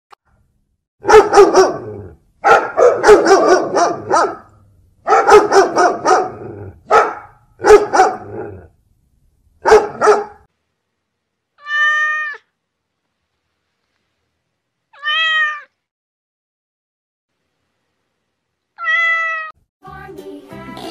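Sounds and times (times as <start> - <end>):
dog barking: 1.0 - 8.6, 9.6 - 10.5
cat meowing: 11.6 - 12.5, 14.9 - 15.8, 18.8 - 19.6.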